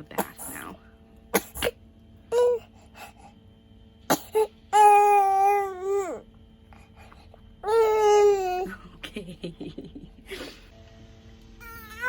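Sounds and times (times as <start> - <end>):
infant crying: 4.7 - 6.2, 7.6 - 8.8, 11.6 - 12.0.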